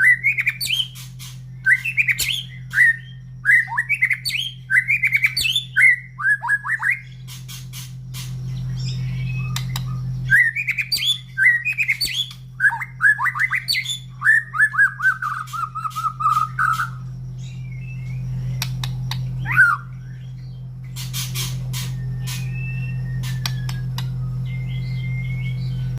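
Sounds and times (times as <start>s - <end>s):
bird singing whistled phrases: 0.0s - 7.3s, 8.5s - 20.6s, 21.4s - 25.9s
low hum: 0.0s - 25.9s
sharp clicks: 9.5s - 9.9s, 18.6s - 19.3s, 23.2s - 24.2s.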